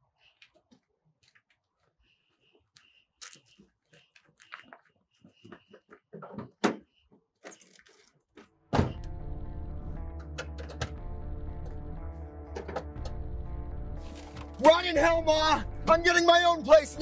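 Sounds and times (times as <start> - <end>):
footsteps: 14.0 - 14.6.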